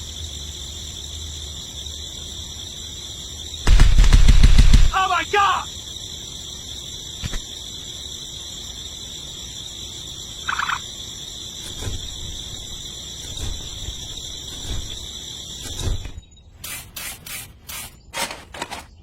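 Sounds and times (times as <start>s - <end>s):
rattling bird call: 10.4s - 10.8s.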